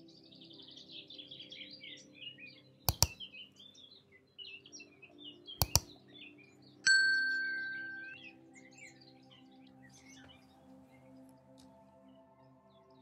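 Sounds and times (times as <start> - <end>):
small birds chirping: 0.0 - 13.0
soft music drone: 0.0 - 13.0
sharp double clicks: 2.9 - 3.2, 5.6 - 5.9
bell-like ding: 6.9 - 8.2.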